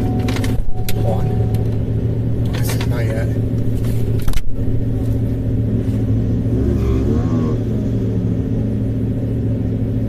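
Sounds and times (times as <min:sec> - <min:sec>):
vehicle engine and road noise: 0:00.0 - 0:10.0
engine revving: 0:00.3 - 0:10.0.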